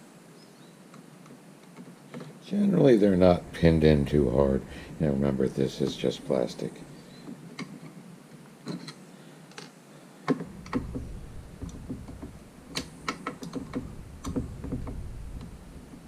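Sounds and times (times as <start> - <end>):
low handling bumps: 2.7 - 7.4, 10.4 - 16.0.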